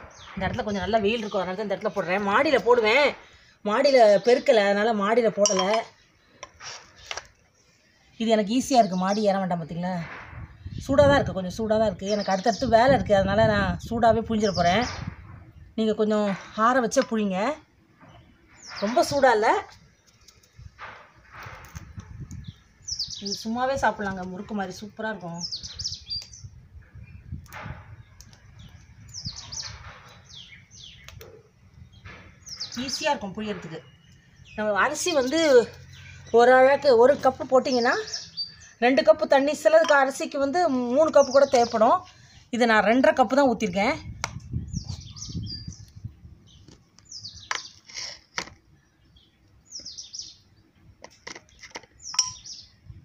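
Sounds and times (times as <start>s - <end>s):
small birds chirping: 0.0s - 53.0s
stick scraping dough in pot: 6.4s - 7.4s, 47.4s - 48.6s.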